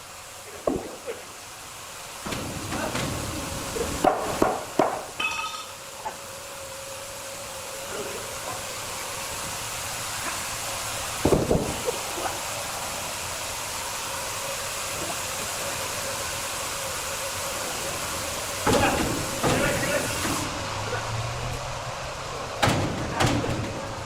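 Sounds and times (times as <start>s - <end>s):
saw machine humming: 0.0s - 22.7s
clatter of knocks: 22.6s - 23.9s.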